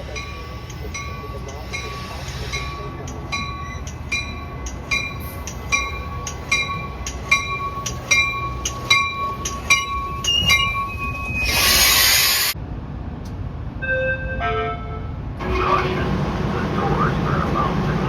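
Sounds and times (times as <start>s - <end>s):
railroad warning bell ringing: 0.0s - 11.8s, 13.8s - 17.0s
loud hiss: 11.5s - 12.6s.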